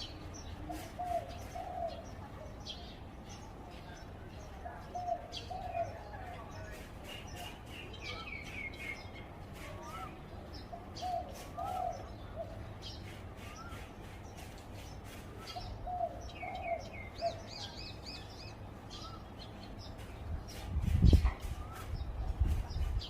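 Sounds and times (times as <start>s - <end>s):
small birds chirping: 0.0s - 23.0s
dove cooing: 0.6s - 2.1s, 4.8s - 6.3s, 10.7s - 12.7s, 15.5s - 17.7s.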